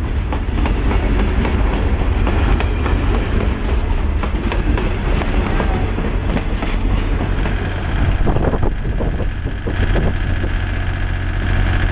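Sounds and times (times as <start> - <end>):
train wheels clicking over rail joints: 0.0 - 11.9
low diesel engine hum: 3.1 - 11.9.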